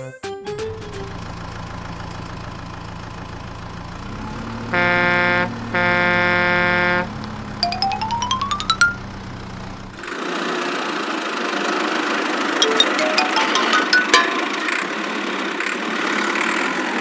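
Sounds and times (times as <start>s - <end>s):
cartoon vehicle engine: 0.5s - 10.2s, 12.4s - 15.5s
loud horn honks: 4.3s - 9.9s.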